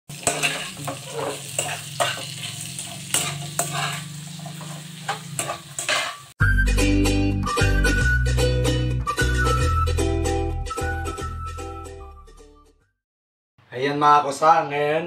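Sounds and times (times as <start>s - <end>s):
fish sizzling in a wok: 0.1s - 6.4s
spatula scraping pan: 0.1s - 6.4s
music: 6.4s - 13.0s.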